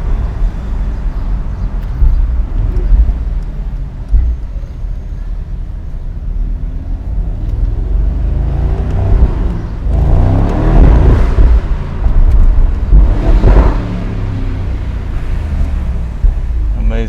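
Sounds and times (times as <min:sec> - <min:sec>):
car engine accelerating hard: 0:06.6 - 0:17.0.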